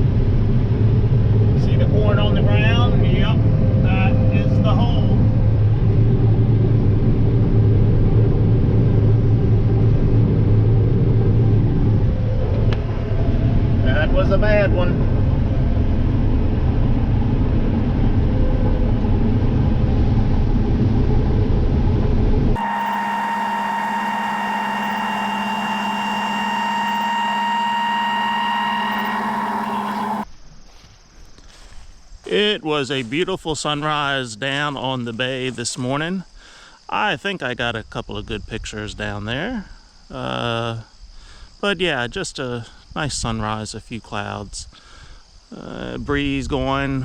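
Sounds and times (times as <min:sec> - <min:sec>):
combine harvester droning: 0:22.6 - 0:30.2
machine hum: 0:22.6 - 0:30.2.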